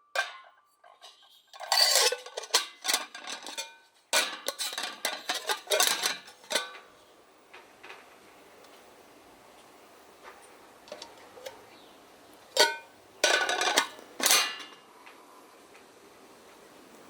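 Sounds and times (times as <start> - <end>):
metal kettle clanking: 0.2 - 0.5, 1.6 - 6.9, 10.9 - 11.6, 12.6 - 14.8.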